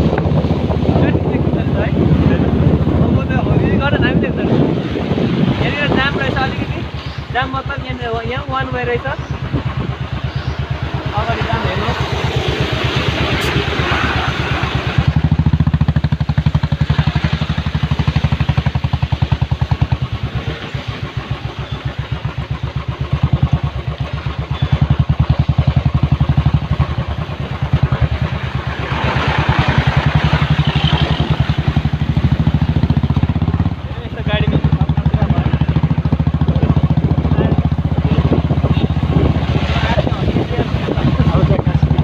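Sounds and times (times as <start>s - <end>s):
motorcycle engine throbbing: 0.0s - 42.0s.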